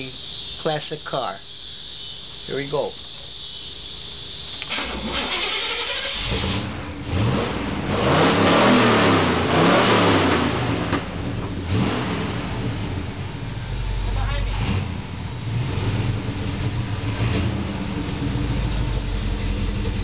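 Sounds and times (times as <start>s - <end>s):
car engine starting and revving: 4.6s - 20.0s.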